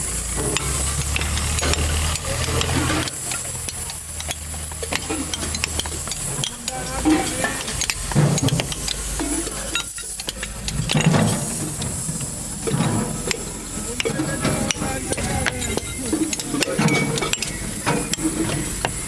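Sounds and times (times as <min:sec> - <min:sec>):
scrap metal clinking and scraping: 0:00.0 - 0:19.0
steady hiss: 0:00.0 - 0:19.0.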